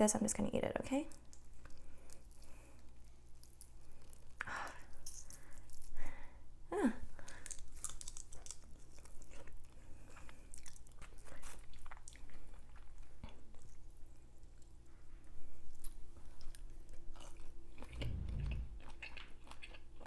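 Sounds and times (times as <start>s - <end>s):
chewing and crunching shrimp: 1.1s - 17.7s
brief falling sound: 18.0s - 19.0s.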